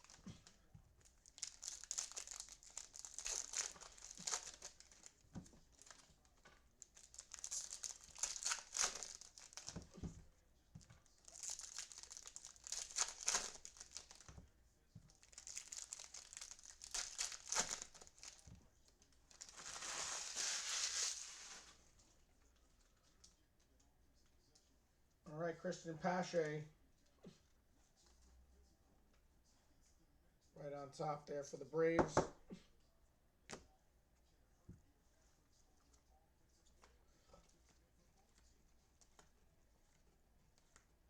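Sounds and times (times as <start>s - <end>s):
plastic wrappers crinkling: 0.0s - 10.1s, 10.8s - 14.4s, 15.1s - 21.8s.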